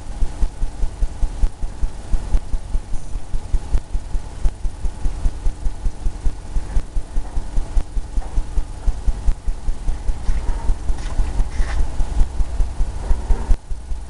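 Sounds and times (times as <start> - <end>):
paintbrush stroking on canvas: 10.2 - 11.9.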